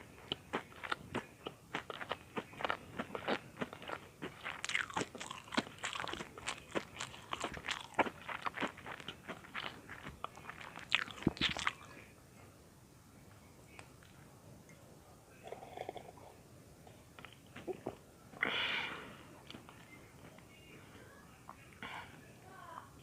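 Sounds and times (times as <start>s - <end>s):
crunching and chewing bread: 0.0s - 12.1s.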